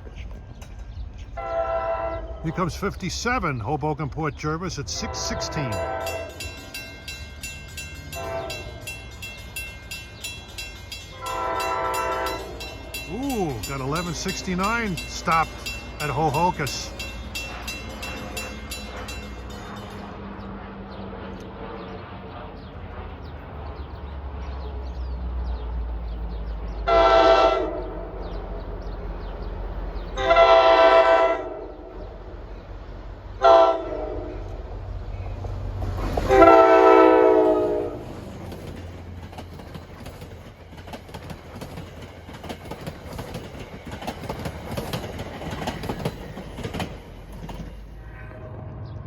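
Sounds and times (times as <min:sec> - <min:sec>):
train cars clattering on rails: 0:00.0 - 0:01.5, 0:04.9 - 0:21.0, 0:35.2 - 0:48.2
locomotive engine rumble: 0:00.0 - 0:49.0
multi-chime train horn: 0:04.9 - 0:20.5, 0:26.9 - 0:27.9, 0:30.2 - 0:31.9, 0:33.4 - 0:34.4, 0:36.3 - 0:38.0.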